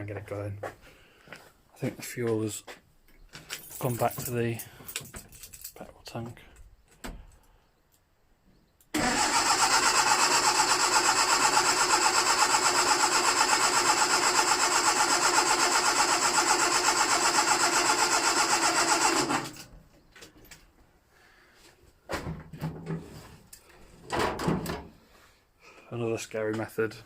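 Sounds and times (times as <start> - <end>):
starter motor cranking engine: 9.0 - 19.7.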